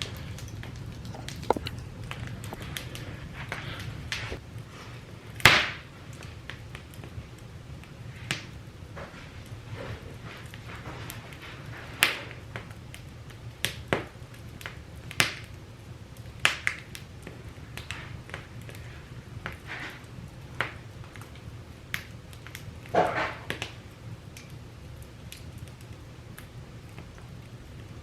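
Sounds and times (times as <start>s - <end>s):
sharp snaps and clicks: 0.0s - 4.4s, 12.0s - 15.6s, 16.2s - 19.6s, 20.6s - 28.0s
crackles: 0.0s - 28.0s
low steady hum: 0.0s - 28.0s.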